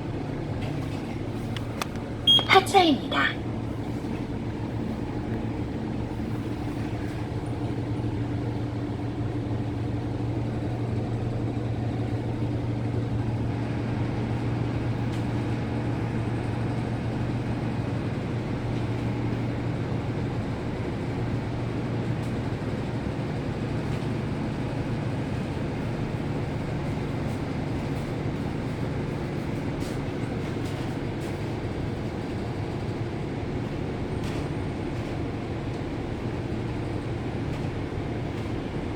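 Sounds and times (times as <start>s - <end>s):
bus engine droning: 0.0s - 38.9s.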